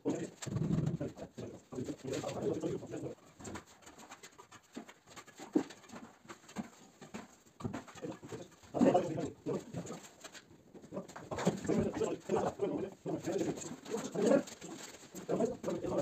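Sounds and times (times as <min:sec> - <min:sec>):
pigeon cooing: 0:00.0 - 0:01.2.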